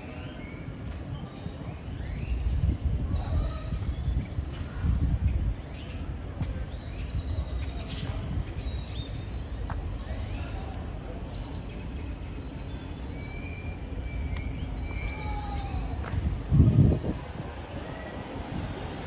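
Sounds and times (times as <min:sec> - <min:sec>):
wind rumble on microphone: 0:01.0 - 0:11.0, 0:13.4 - 0:17.8.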